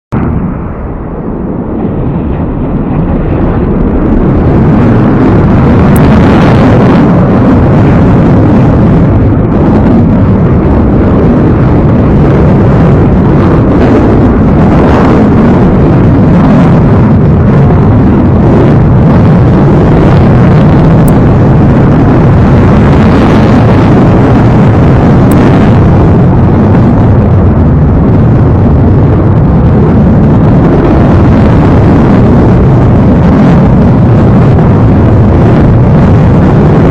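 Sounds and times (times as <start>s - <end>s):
fighter jet engine roar: 0.1s - 36.9s.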